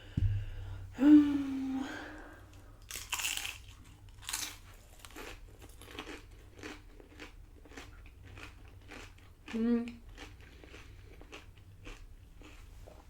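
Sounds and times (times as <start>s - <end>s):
chewing with small crunches: 2.5s - 13.0s
crunching bites of chips: 2.8s - 12.7s.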